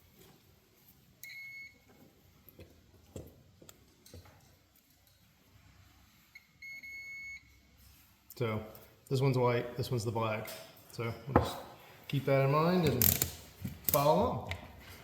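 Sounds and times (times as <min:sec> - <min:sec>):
multimeter continuity beep: 0:01.2 - 0:01.8, 0:06.3 - 0:07.5.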